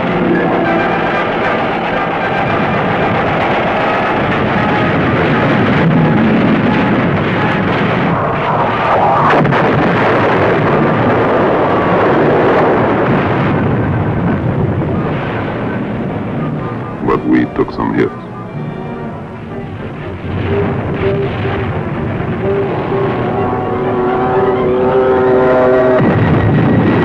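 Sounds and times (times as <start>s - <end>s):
anti-aircraft gunfire: 0.0s - 18.0s
explosions: 2.4s - 18.2s.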